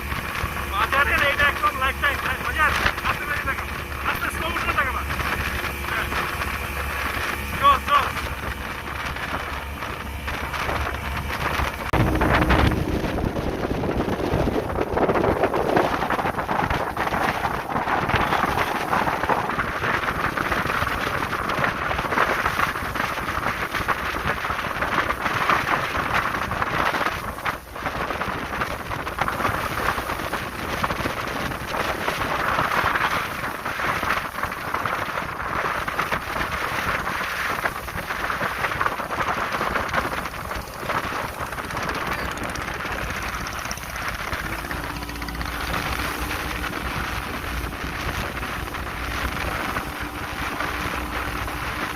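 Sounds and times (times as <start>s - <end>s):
water rushing past hull: 0.0s - 51.9s
wind rushing over microphone: 0.0s - 51.9s
faint engine tone: 4.8s - 14.0s.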